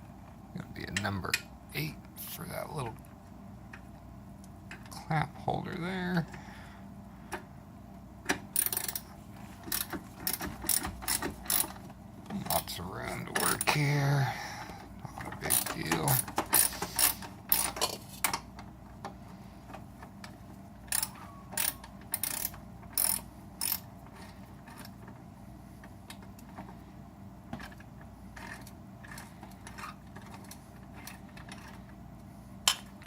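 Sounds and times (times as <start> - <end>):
socket ratchet clicking: 8.6 - 9.0, 9.7 - 11.8, 15.5 - 17.9, 20.9 - 23.9.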